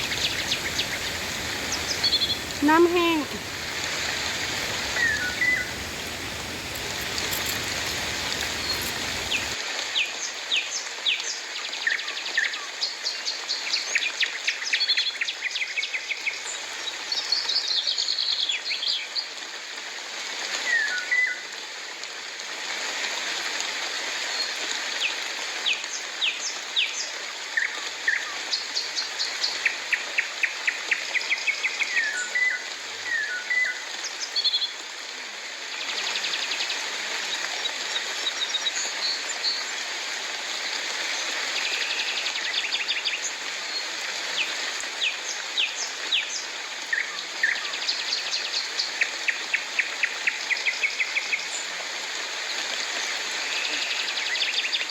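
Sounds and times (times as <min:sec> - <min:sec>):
birds chirping and trilling: 0:00.0 - 0:02.6, 0:03.4 - 0:09.6
rain hiss: 0:00.0 - 0:12.0, 0:18.4 - 0:54.9.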